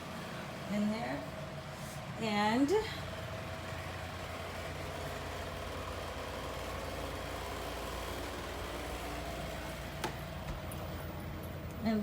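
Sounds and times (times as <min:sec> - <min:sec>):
motor humming: 0:02.2 - 0:11.8.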